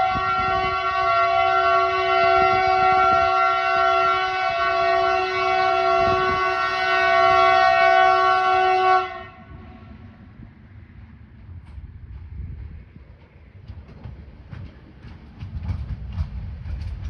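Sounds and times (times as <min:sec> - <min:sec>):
locomotive horn blast: 0:00.0 - 0:09.8
passing train rumble: 0:00.0 - 0:17.0.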